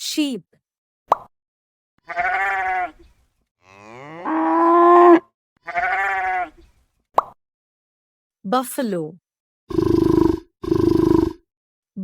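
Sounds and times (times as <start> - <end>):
cow mooing: 3.6 - 6.5.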